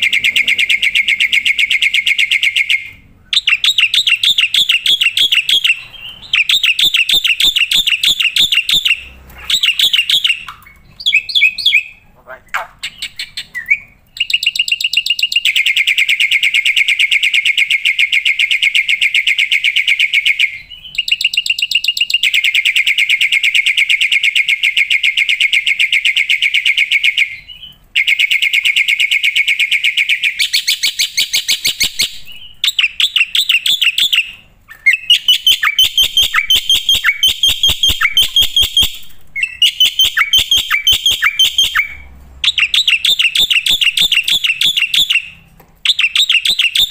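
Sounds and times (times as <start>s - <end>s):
starling singing: 0.0s - 15.9s, 27.3s - 46.9s.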